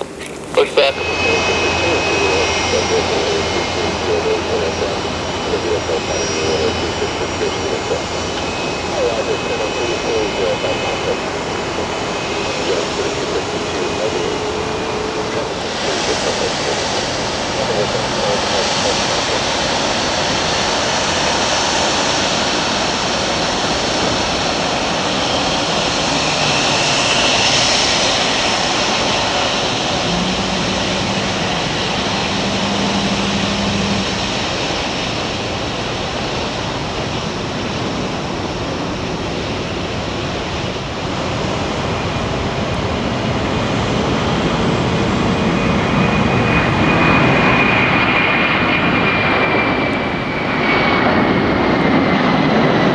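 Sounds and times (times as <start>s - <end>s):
jet engines running: 0.0s - 52.9s
high thin whine: 29.0s - 34.4s.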